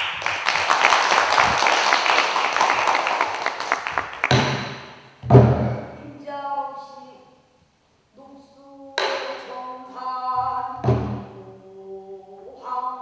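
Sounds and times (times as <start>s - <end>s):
audience applauding: 0.0s - 4.8s
low thump: 4.3s - 5.9s, 10.4s - 11.4s.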